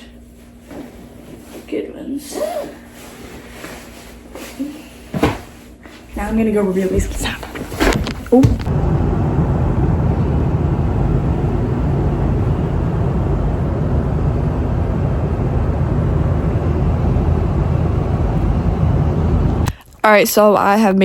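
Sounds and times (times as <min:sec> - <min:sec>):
airliner cabin rumble: 0:06.2 - 0:19.7.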